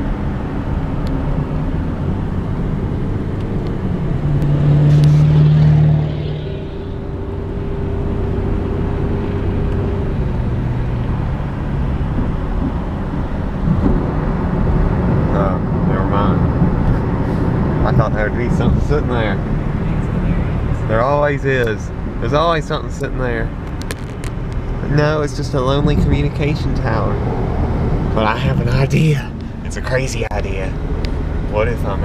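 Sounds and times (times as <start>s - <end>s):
traffic rumble: 0.0s - 32.0s
humming tones shifting in pitch: 3.3s - 11.0s.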